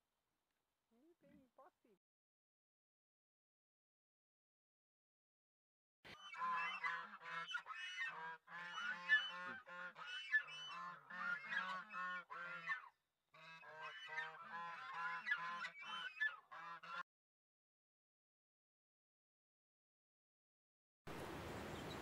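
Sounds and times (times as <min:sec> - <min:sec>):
geese honking: 0:06.1 - 0:12.8, 0:13.4 - 0:17.0.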